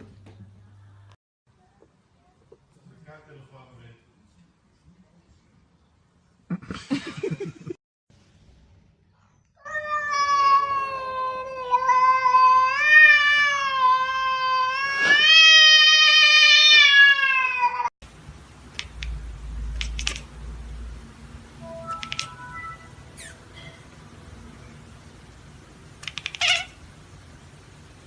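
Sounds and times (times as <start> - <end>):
cat yowling: 9.6 - 17.9, 26.0 - 26.8.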